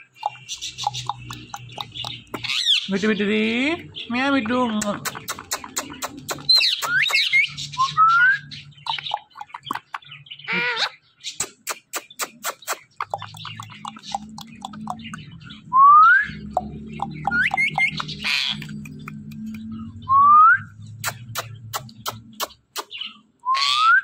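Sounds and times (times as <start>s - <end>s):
parrot clicking: 0.1s - 2.8s, 4.7s - 7.3s, 8.9s - 10.1s, 11.4s - 15.3s, 16.4s - 19.7s, 21.0s - 23.0s
parrot whistling and chirping: 5.2s - 9.6s, 11.9s - 19.2s, 20.0s - 24.0s.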